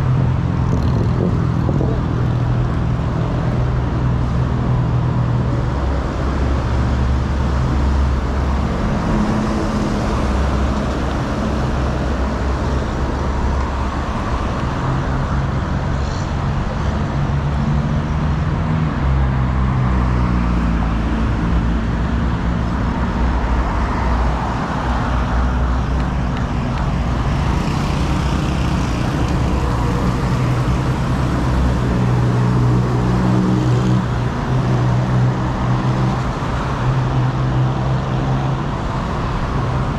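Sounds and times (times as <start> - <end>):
road noise: 0.0 - 39.9
vehicle engines humming: 0.0 - 39.9
vehicles passing: 0.0 - 39.9.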